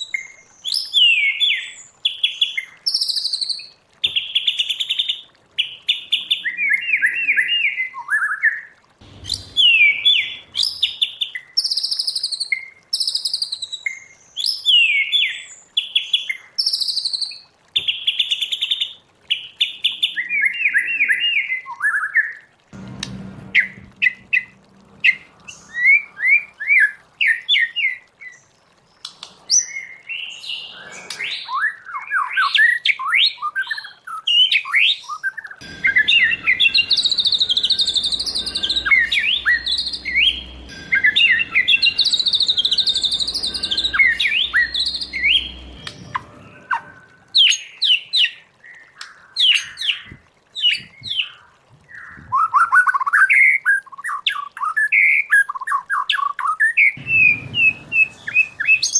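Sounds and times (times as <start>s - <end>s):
bird singing whistles and chirps: 6.1s - 15.6s, 29.5s - 48.3s, 50.6s - 58.9s.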